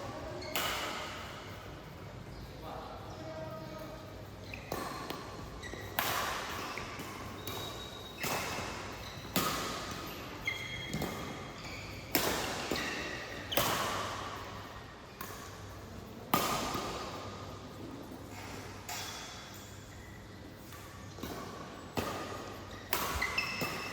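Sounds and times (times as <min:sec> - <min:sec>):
sneakers squeaking on court: 0:00.0 - 0:15.8, 0:18.3 - 0:23.9
racket hitting shuttlecock: 0:00.5 - 0:01.4, 0:04.5 - 0:15.7, 0:16.3 - 0:17.4, 0:20.6 - 0:23.9.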